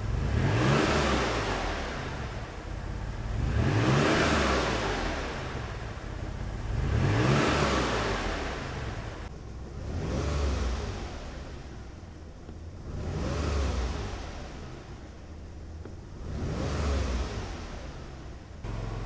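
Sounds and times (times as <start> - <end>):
car engine revving: 0.0 - 11.4, 12.8 - 14.4, 16.2 - 18.0, 18.7 - 19.0.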